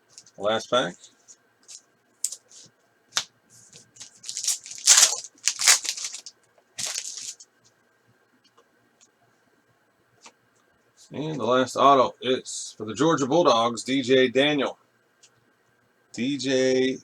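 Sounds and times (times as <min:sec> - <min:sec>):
foil wrapper tearing: 0:04.0 - 0:07.4.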